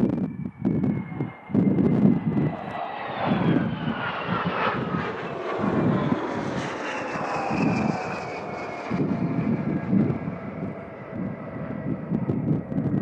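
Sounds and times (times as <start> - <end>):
jet engine high whine: 0.0 - 13.0
jet engines deep pulsing rumble: 0.0 - 13.0.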